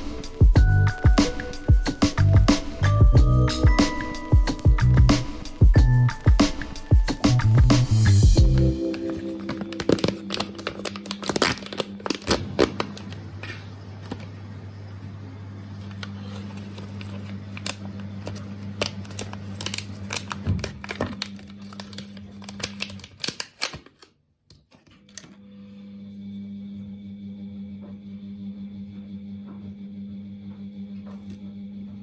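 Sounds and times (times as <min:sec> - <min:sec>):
low steady hum: 0:07.2 - 0:18.4
clicks taps and crinkling: 0:08.9 - 0:14.3, 0:15.9 - 0:24.9.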